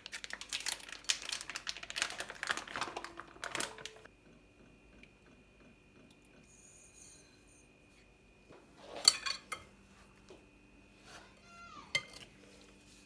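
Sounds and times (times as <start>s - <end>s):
dishes and utensils clattering: 8.8s - 9.7s, 11.9s - 12.4s.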